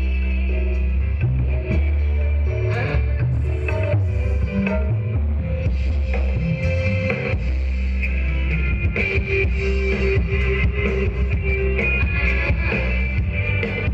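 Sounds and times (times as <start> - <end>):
rock music with guitar and drums: 0.0 - 13.9.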